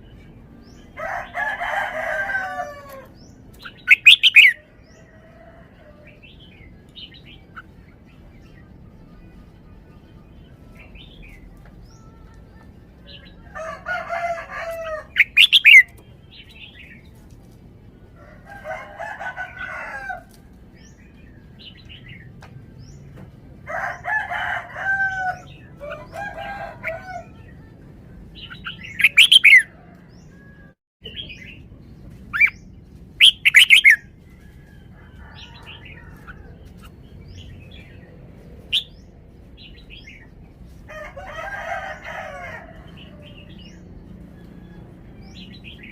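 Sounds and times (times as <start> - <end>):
bird warbling phrases: 3.6 - 4.6, 14.8 - 15.9, 28.4 - 29.7, 33.2 - 34.0.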